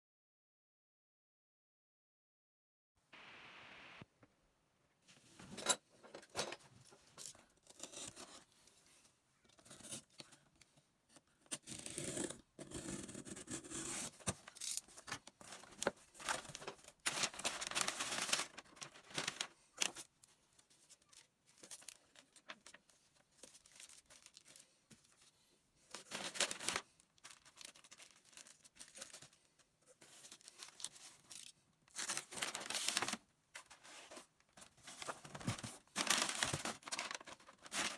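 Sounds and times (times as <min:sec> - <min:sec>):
packaging tearing and crumpling: 0:15.6 - 0:20.0, 0:26.1 - 0:29.2, 0:30.4 - 0:33.2, 0:35.0 - 0:37.9.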